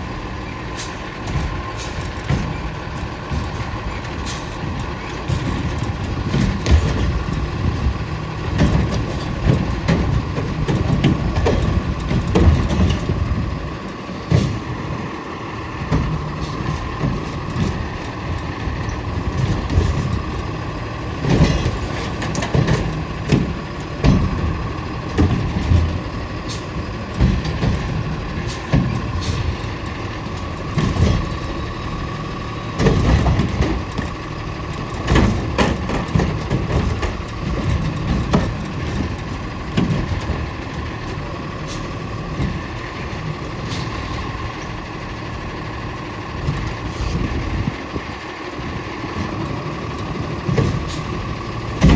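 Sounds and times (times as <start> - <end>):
garbage truck engine rumbling: 0.0 - 51.9
sharp knocks and bangs: 5.2 - 13.5, 21.2 - 29.6, 32.7 - 40.7, 50.4 - 51.9.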